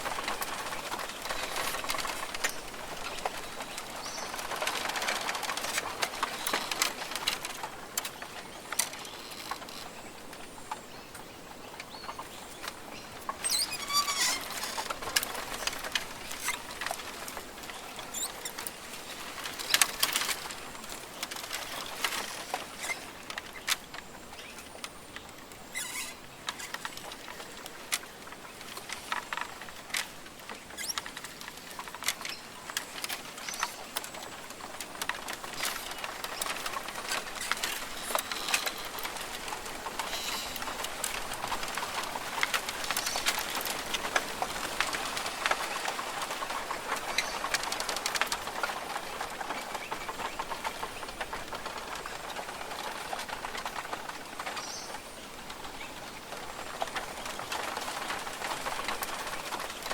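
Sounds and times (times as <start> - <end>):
crackling clicks and patters: 0.0 - 59.9
bird calls: 8.2 - 24.8, 25.6 - 27.6, 35.4 - 41.0.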